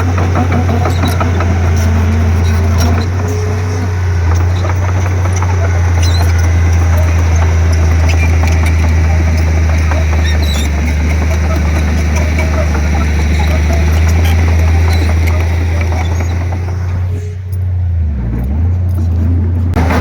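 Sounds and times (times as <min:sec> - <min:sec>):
bulldozer diesel engine droning: 0:00.0 - 0:20.0.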